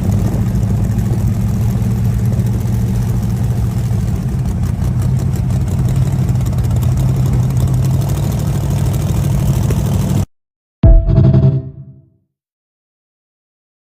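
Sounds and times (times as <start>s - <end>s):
car engine idling loudly: 0.0s - 10.2s.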